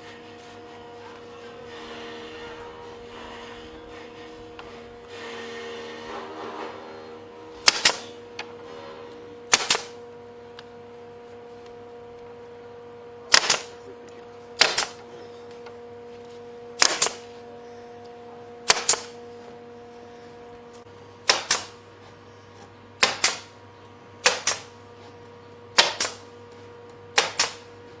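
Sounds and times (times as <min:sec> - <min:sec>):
faint steady hum: 0:06.8 - 0:28.0.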